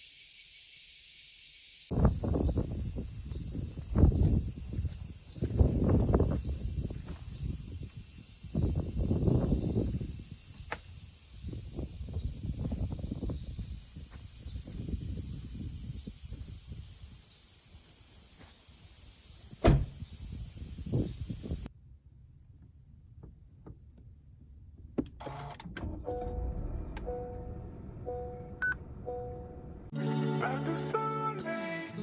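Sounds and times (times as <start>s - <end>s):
high-pitched insect chorus: 0.0s - 21.7s.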